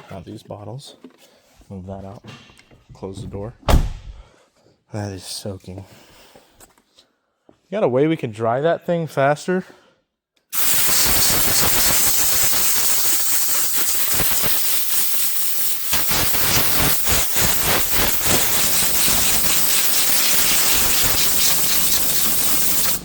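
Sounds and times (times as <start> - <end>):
compressed air hissing: 10.6 - 23.0.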